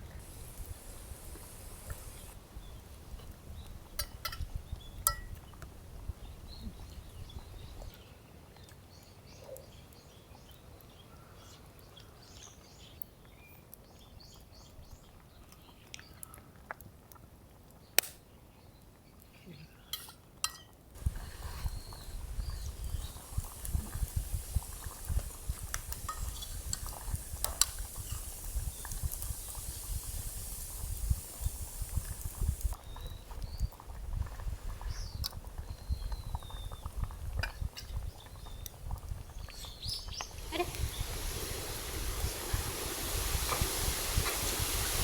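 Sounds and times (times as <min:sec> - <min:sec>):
food sizzling with crackles: 0:00.0 - 0:08.0, 0:21.0 - 0:45.0
metal utensils clinking on pot: 0:20.0 - 0:20.7.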